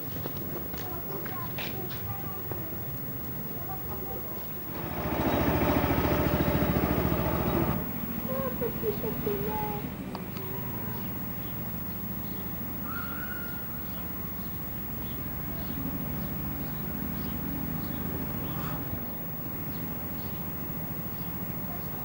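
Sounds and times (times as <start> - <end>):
low outdoor rumble: 4.5 - 11.0
small birds chirping: 10.2 - 22.0.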